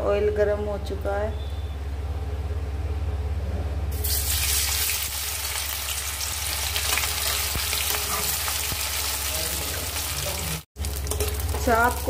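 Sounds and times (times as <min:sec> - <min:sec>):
food frying in hot oil: 0:03.9 - 0:12.0
metal ladle stirring: 0:10.9 - 0:12.0.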